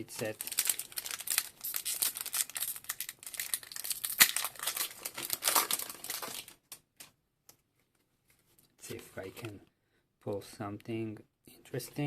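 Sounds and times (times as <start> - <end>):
foil wrapper crinkling: 0.1 - 6.6.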